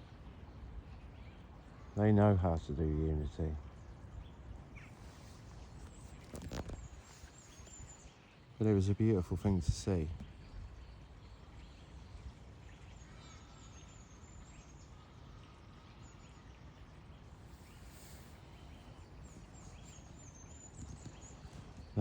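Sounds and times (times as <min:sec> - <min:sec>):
small birds chirping: 0:00.9 - 0:22.0.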